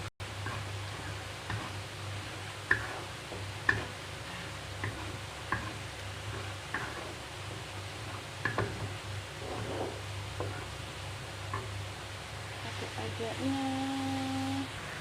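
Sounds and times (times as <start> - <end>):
food sizzling in a pan: 0.2 - 15.0
spatula knocking against a pan: 3.6 - 3.9, 4.8 - 7.0, 8.4 - 8.9.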